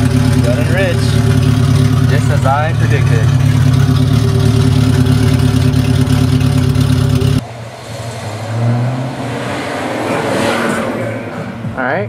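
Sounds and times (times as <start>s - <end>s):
car engine idling: 0.0s - 8.9s.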